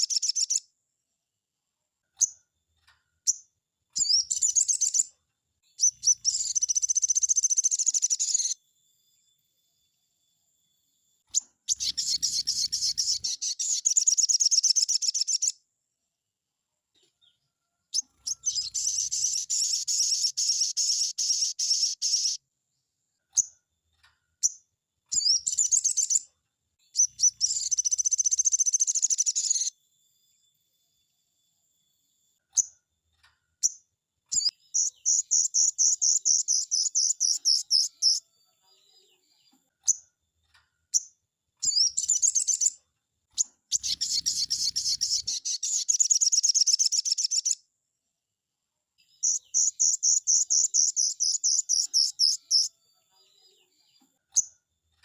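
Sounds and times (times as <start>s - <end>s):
songbird trilling song: 0.0s - 0.7s, 3.2s - 8.6s, 11.3s - 15.6s, 17.2s - 22.4s, 24.4s - 29.8s, 33.6s - 38.3s, 40.9s - 42.8s, 43.4s - 47.6s, 49.1s - 52.8s
bird short chirps: 11.3s - 15.5s, 18.0s - 22.4s, 41.0s - 42.8s, 43.4s - 47.6s, 49.2s - 52.7s.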